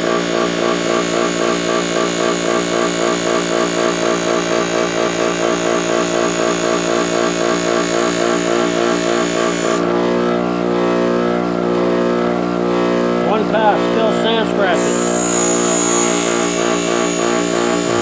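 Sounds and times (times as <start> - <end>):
sanding machine motor hum: 0.0 - 18.0
hissing grind on metal: 14.8 - 18.0.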